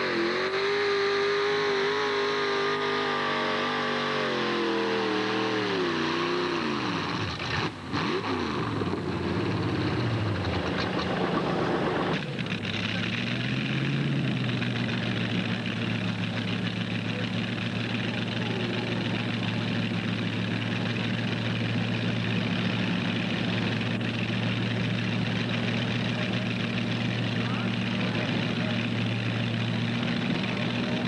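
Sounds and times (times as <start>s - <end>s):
tractor engine idling: 8.6s - 31.0s.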